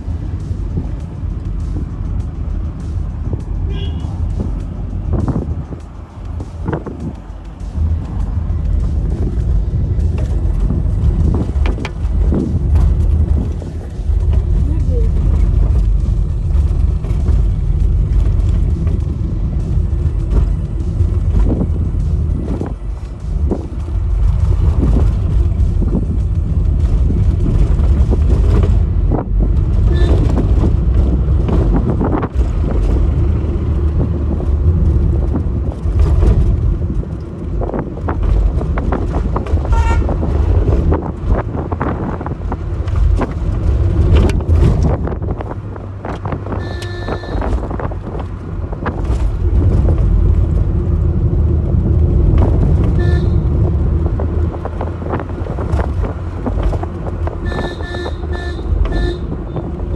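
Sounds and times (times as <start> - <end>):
car engine and tyres rumbling: 0.0 - 59.9
car horn honks: 3.6 - 4.5, 29.8 - 30.8, 39.6 - 40.3, 46.5 - 47.8, 52.8 - 53.8, 57.4 - 59.7.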